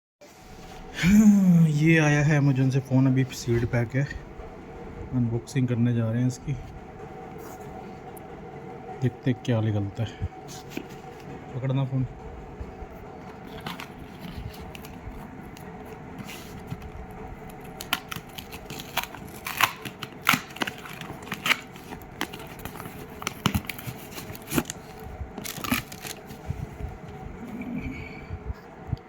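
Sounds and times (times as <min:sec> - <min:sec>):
packaging crinkling and tearing: 0:13.4 - 0:26.6.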